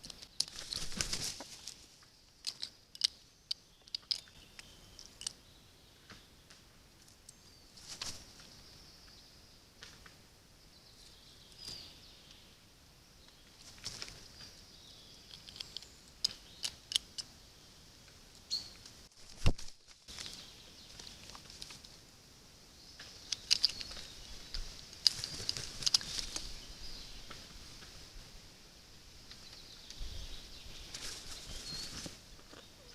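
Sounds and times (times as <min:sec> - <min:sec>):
wild birds chirping: 0:00.0 - 0:19.1, 0:20.0 - 0:32.9.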